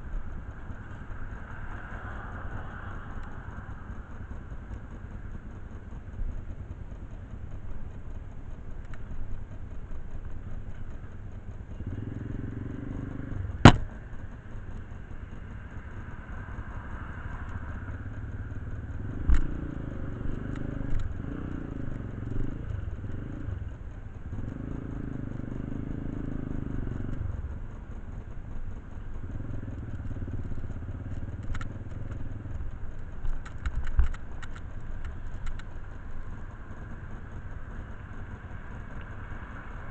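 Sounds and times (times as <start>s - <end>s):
engine running: 0.0s - 39.9s
sharp metallic knock: 13.6s - 13.9s.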